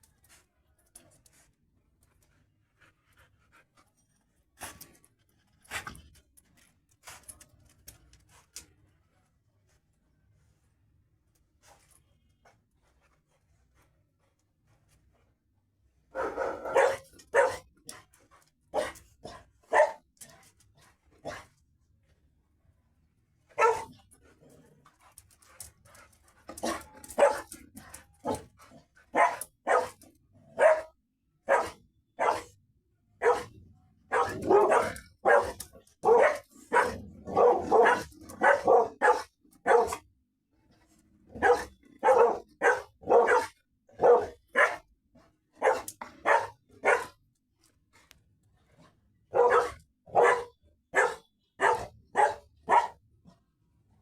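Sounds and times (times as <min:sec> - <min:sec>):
dog barking: 0:16.1 - 0:17.7, 0:18.7 - 0:19.0, 0:19.7 - 0:20.1, 0:23.6 - 0:24.0, 0:26.6 - 0:27.5, 0:29.1 - 0:32.6, 0:33.2 - 0:40.1, 0:41.3 - 0:44.9, 0:45.6 - 0:47.2, 0:49.3 - 0:53.0.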